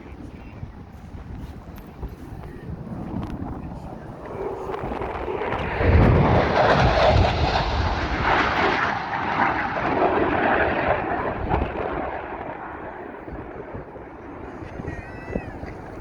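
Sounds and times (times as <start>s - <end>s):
airplane flying past: 2.6s - 16.0s.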